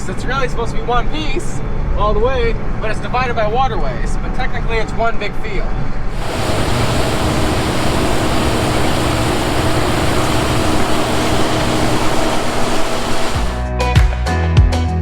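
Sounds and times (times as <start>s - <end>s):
harvester engine running: 6.1s - 13.7s.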